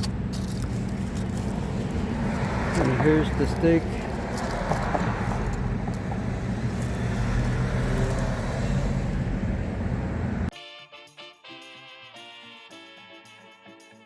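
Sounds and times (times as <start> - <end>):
low rumble of vehicle traffic: 0.0 - 10.5.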